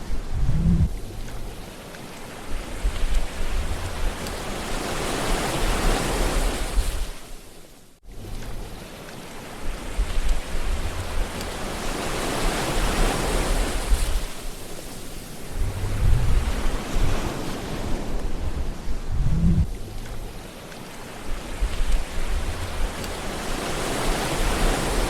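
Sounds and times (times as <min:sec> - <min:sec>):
low rumble: 0:00.0 - 0:01.6, 0:02.7 - 0:04.5, 0:09.7 - 0:11.9, 0:15.5 - 0:20.5, 0:21.3 - 0:23.6
ocean waves washing: 0:00.0 - 0:25.0.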